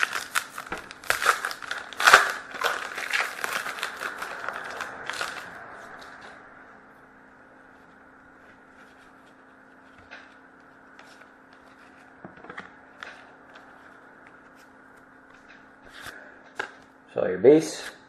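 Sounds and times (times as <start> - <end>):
low hum: 0.0 - 17.1.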